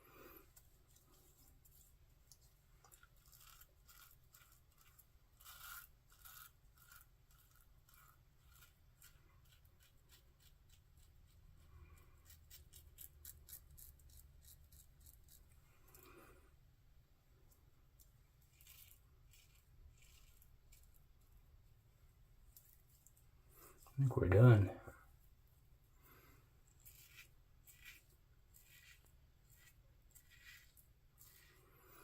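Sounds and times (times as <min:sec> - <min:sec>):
razor scraping stubble: 0:00.9 - 0:16.2, 0:18.0 - 0:21.2, 0:26.2 - 0:32.0.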